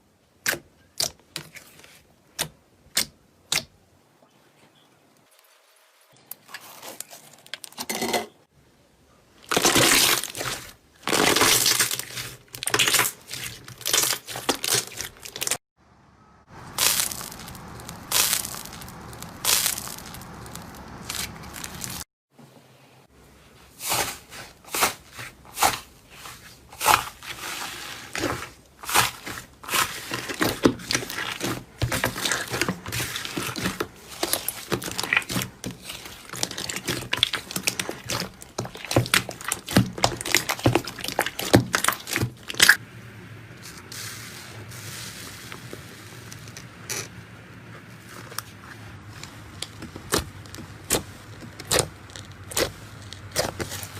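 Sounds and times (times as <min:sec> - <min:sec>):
slime crackling and popping: 0:09.5 - 0:15.6, 0:16.6 - 0:22.0, 0:28.2 - 0:42.8, 0:49.5 - 0:53.9.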